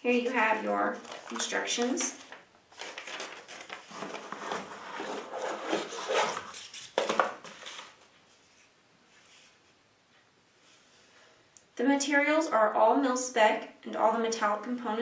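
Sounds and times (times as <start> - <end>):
hands rustling packaging: 0.1 - 8.1.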